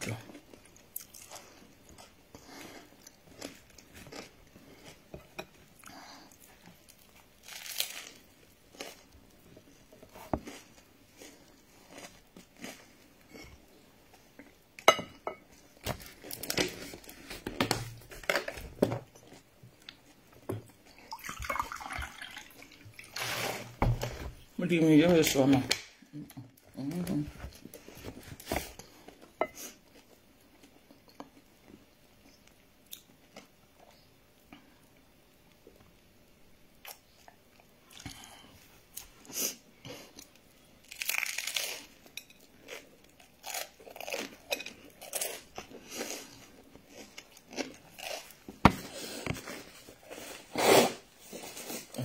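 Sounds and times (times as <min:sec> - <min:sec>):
chewing and crunching food: 0:00.0 - 0:14.8, 0:36.8 - 0:50.4
water poured into a glass: 0:21.1 - 0:22.8.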